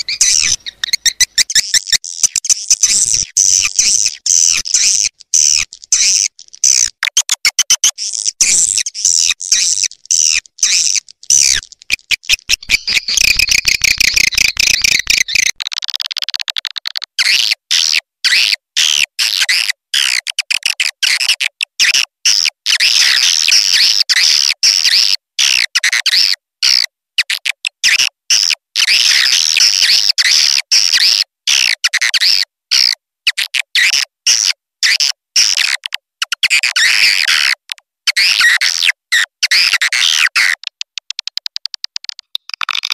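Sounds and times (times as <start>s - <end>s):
birds twittering chatter: 0.0s - 6.9s, 8.0s - 15.6s.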